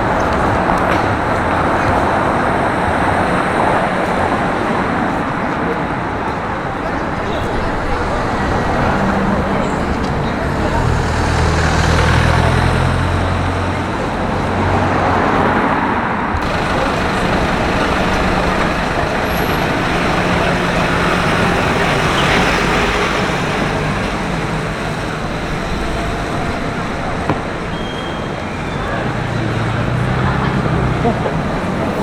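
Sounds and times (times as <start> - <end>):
tyres on the road: 0.0 - 32.0
vehicle engines running: 0.0 - 32.0
low engine hum: 16.3 - 32.0.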